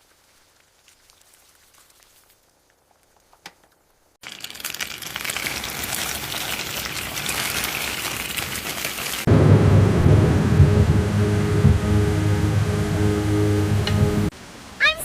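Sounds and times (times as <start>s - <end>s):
heavy rain downpour: 4.2s - 15.0s.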